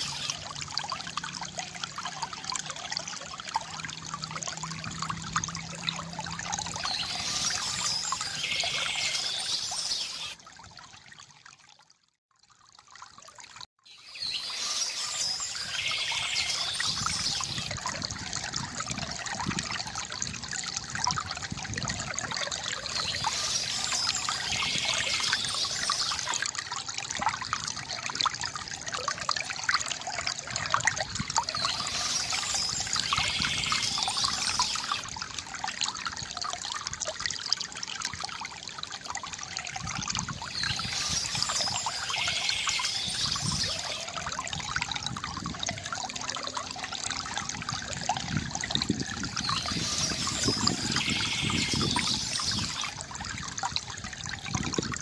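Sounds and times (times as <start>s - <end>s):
bright high-pitched water burst: 0.0s - 0.4s, 6.7s - 10.4s, 14.0s - 17.7s, 22.8s - 26.5s, 31.4s - 35.1s, 40.3s - 44.2s, 49.3s - 53.0s
water trickling from bamboo fountain: 0.0s - 55.0s.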